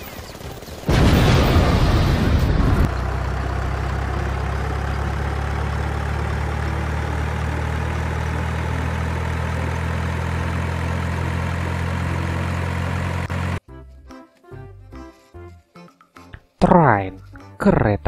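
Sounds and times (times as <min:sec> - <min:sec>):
engine idling: 0:00.6 - 0:13.6.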